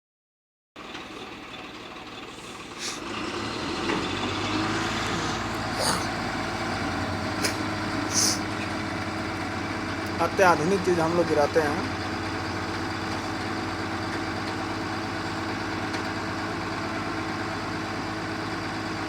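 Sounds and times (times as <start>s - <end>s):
diesel truck engine running: 0.8s - 19.0s
short high hisses: 2.3s - 3.1s, 4.8s - 6.4s, 7.3s - 8.5s.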